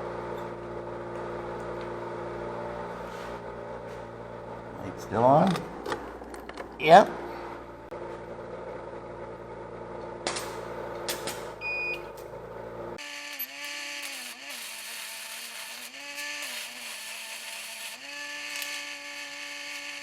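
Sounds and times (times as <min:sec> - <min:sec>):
welding arc buzzing and crackling: 0:13.0 - 0:20.0
welding rod scratching and clicking: 0:13.0 - 0:20.0.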